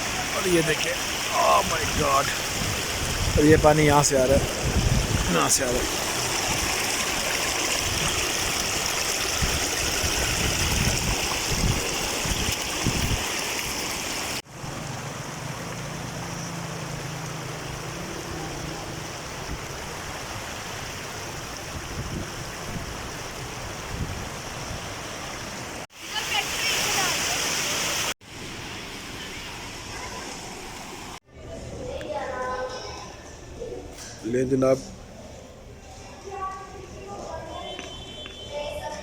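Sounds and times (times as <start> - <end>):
waterfall and stream rushing: 0.0 - 31.2.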